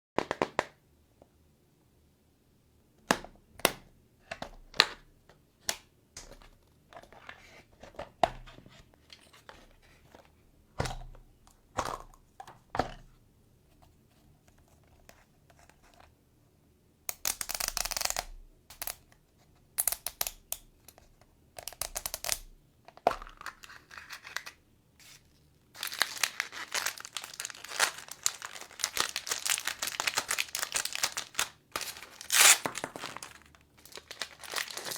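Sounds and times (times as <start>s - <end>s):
plastic parts clicking and tapping: 17.1s - 19.2s, 19.8s - 24.6s
wrapper tearing and crinkling: 25.8s - 34.9s.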